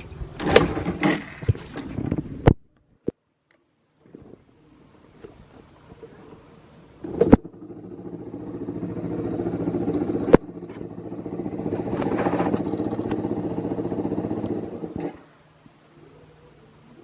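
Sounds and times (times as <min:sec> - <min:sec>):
motorcycle engine revving: 0:07.0 - 0:15.2.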